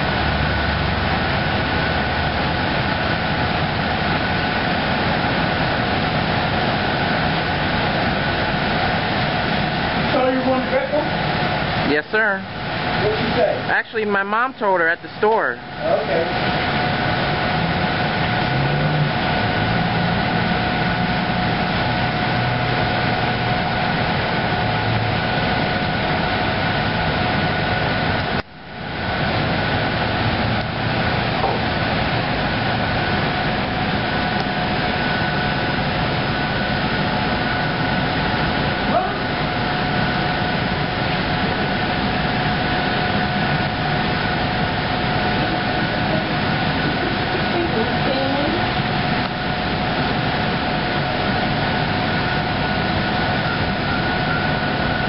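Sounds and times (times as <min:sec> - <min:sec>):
continuous hiss: 0:00.0 - 0:55.0
machine hum with high whine: 0:00.0 - 0:55.0.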